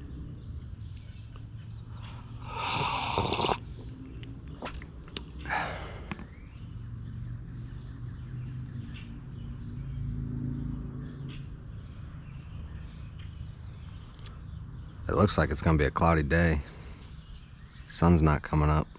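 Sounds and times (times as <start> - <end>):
faint birds: 0.0 - 18.9.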